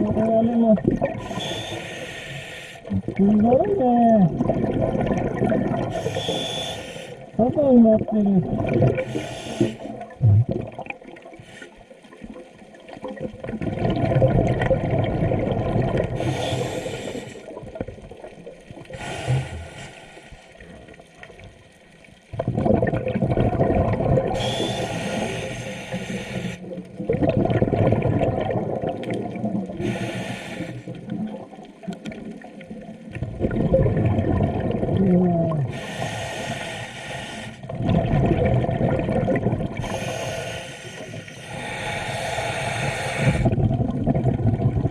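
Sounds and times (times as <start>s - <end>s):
exhaled air bubbling: 0.0s - 44.9s
regulator inhale hiss: 1.2s - 2.9s, 5.9s - 7.3s, 9.0s - 9.9s, 11.4s - 11.9s, 16.2s - 17.5s, 18.9s - 20.5s, 24.4s - 26.7s, 29.8s - 31.0s, 35.7s - 37.6s, 39.8s - 43.5s.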